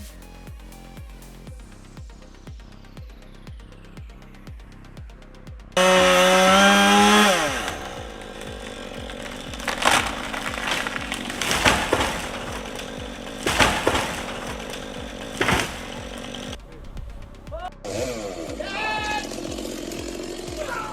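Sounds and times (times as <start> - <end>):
chainsaw at full throttle: 5.8 - 16.6, 17.9 - 20.9
sharp cracks: 5.8 - 16.6.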